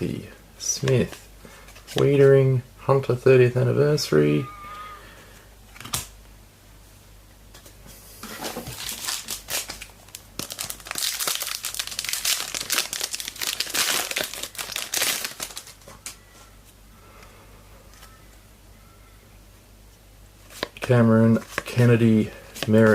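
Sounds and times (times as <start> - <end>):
wrapper being torn and crinkled: 8.7 - 15.8.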